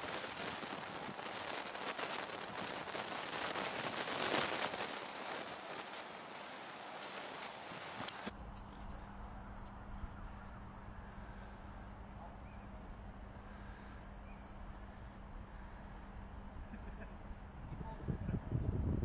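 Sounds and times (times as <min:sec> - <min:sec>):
steady low hum: 0:08.1 - 0:19.0
small songbird chirping: 0:08.3 - 0:16.4, 0:17.0 - 0:18.9.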